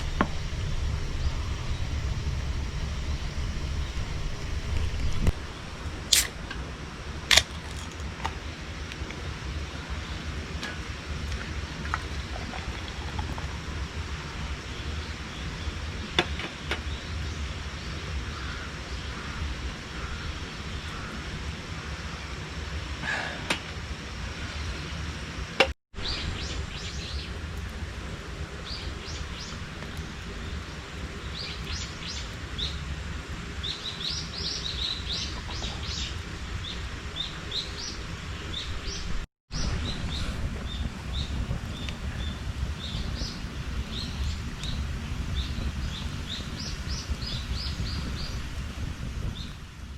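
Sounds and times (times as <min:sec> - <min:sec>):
small birds chirping: 0:00.0 - 0:06.2, 0:33.5 - 0:48.6
low background rumble: 0:00.0 - 0:49.9.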